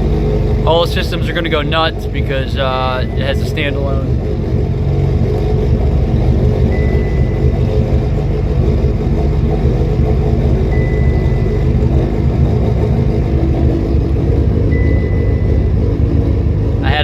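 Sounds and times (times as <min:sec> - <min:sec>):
car engine idling: 0:00.0 - 0:17.0
thin high tone: 0:06.6 - 0:07.9, 0:10.6 - 0:12.0, 0:14.6 - 0:17.0.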